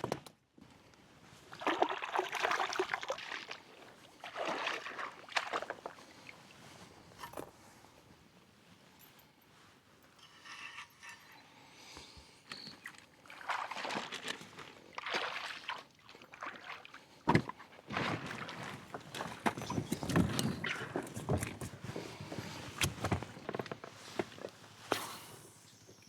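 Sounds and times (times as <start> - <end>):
water sloshing and splashing: 1.5 - 6.7, 12.8 - 24.5
handling and scraping noises: 5.7 - 8.1, 8.7 - 13.1, 17.3 - 26.0.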